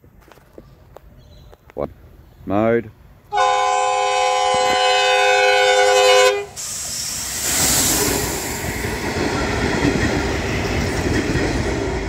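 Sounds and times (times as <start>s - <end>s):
train horn blast: 3.3s - 6.6s
railcar rumbling past: 3.3s - 12.0s.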